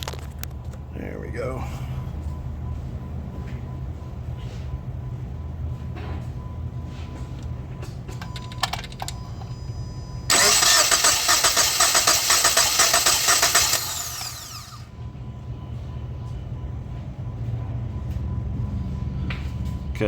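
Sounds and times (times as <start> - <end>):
car engine cranking on starter: 10.3 - 14.9.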